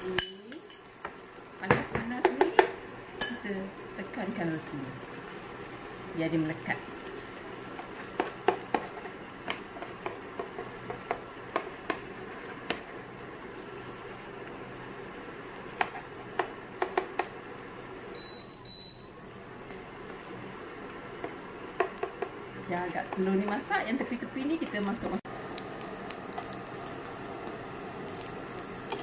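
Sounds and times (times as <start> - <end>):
food sizzling in a pan: 0.0 - 29.0
short high beeps: 18.2 - 19.1.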